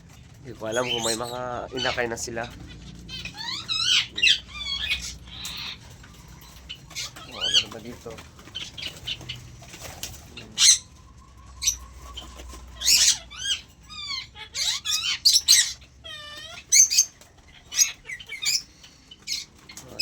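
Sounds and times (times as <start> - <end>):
birds chirping: 0.0 - 20.0
birds screeching: 0.0 - 20.0
bird whistling: 2.8 - 7.8, 10.6 - 15.8.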